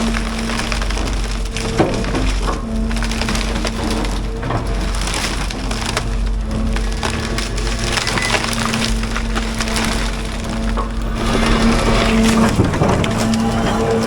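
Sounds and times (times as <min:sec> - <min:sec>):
diesel excavator running: 0:00.0 - 0:14.0
wood cracking and splintering: 0:00.0 - 0:14.0.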